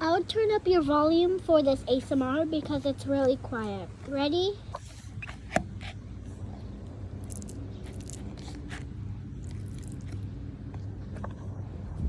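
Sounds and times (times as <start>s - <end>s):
low background rumble: 0.0s - 12.0s
faint squishy crackles: 5.2s - 11.3s.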